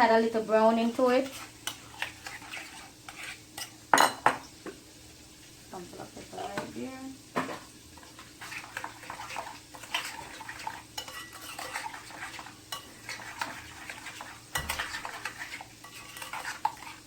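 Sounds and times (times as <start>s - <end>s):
spoon stirring sauce in bowl: 1.0s - 4.8s, 8.0s - 17.0s
spoon scraping and clinking bowl: 1.2s - 4.4s, 8.4s - 17.0s.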